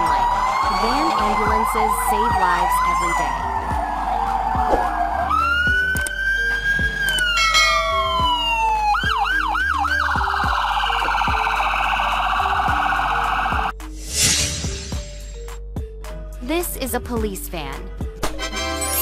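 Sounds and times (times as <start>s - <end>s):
ambulance siren wailing and yelping: 0.0s - 13.7s.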